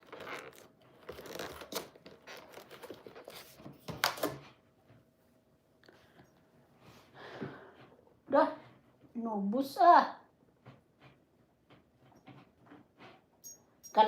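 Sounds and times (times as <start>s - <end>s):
rustling and crinkling: 0.0s - 5.2s.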